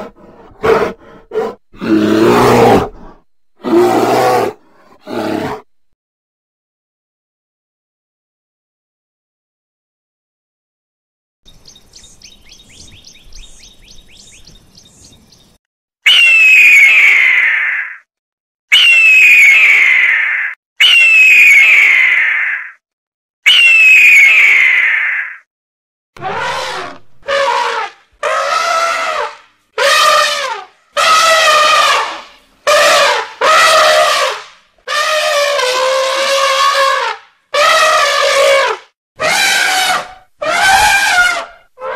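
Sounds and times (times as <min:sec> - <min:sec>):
cheetah chirping: 0:11.5 - 0:16.2
bird of prey screaming: 0:16.0 - 0:18.1, 0:18.7 - 0:22.8, 0:23.5 - 0:25.5, 0:26.2 - 0:37.0, 0:37.6 - 0:41.9
elephants trumpeting: 0:26.2 - 0:41.9.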